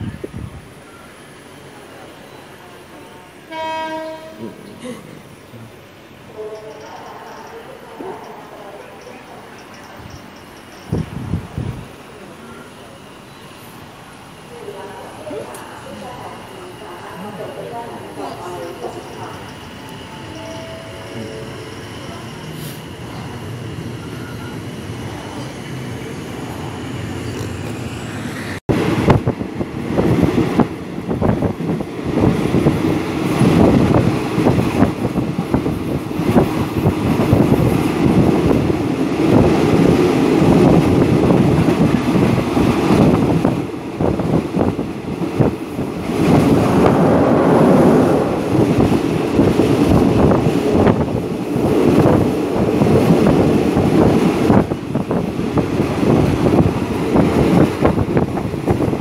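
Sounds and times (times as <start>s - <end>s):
wind buffeting microphone: 0.0s - 0.8s, 10.8s - 12.0s, 24.2s - 59.0s
train running along track: 0.0s - 59.0s.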